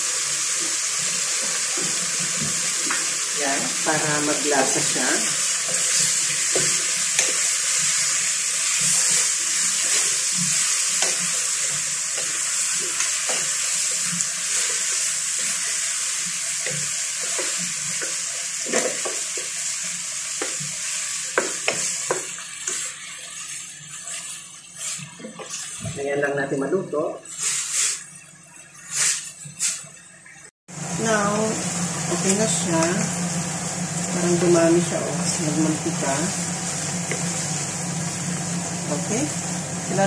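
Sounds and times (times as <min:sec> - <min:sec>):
chicken sizzling in hot oil: 0:00.0 - 0:26.4, 0:27.0 - 0:28.2, 0:28.8 - 0:30.0, 0:30.7 - 0:40.0
spatula scraping a pan: 0:21.6 - 0:25.4.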